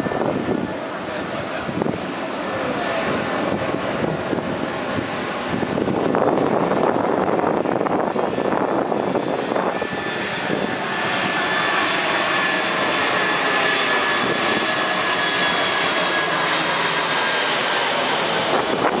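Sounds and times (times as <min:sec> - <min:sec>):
jet airliner flying past: 0:00.0 - 0:19.0.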